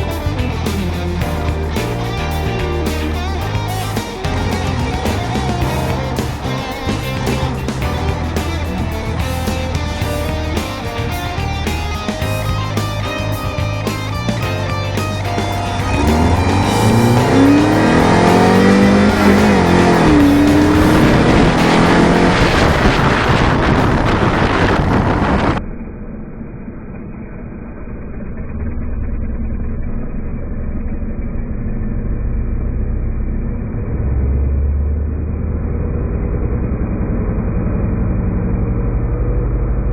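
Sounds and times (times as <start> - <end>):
rock music with electric guitar: 0.0 - 25.6
car engine revving: 0.0 - 39.9
muffled car engine running: 15.3 - 39.9.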